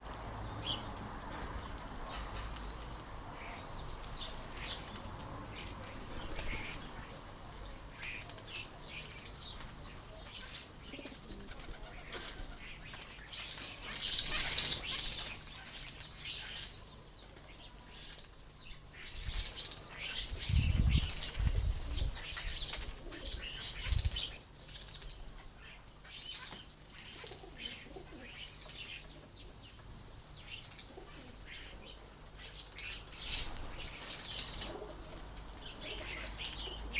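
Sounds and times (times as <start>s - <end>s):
starlings screeching and chattering: 7.9s - 16.8s, 17.5s - 29.1s, 32.4s - 35.0s.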